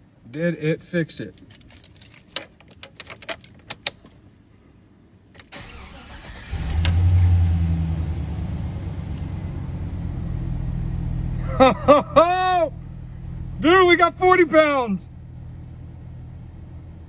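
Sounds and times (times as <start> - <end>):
keys jingling: 1.2 - 4.1
car engine cranking and idling: 5.3 - 17.0.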